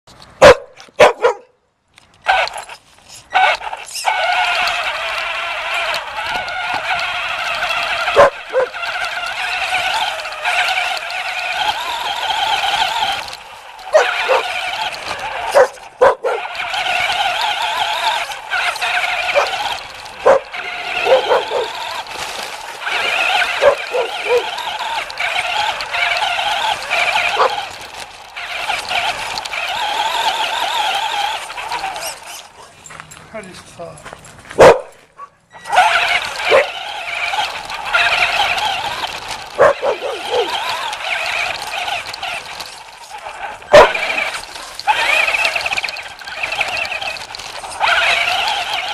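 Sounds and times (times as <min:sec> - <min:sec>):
puppy barking and yipping: 0:00.4 - 0:01.5, 0:06.9 - 0:10.8, 0:13.9 - 0:14.7, 0:15.4 - 0:22.0, 0:22.9 - 0:25.8, 0:26.4 - 0:27.8, 0:34.6 - 0:36.9, 0:37.9 - 0:41.2, 0:43.7 - 0:45.2
toy car electric motor whine: 0:02.0 - 0:32.7, 0:35.5 - 0:48.9.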